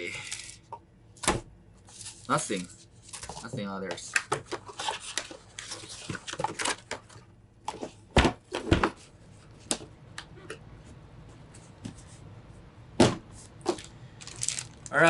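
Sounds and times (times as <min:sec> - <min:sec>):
box rustling: 0:13.7 - 0:14.8.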